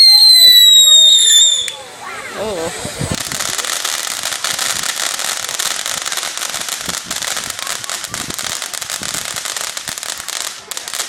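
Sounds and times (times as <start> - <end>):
firework crackling: 0.0 - 11.0.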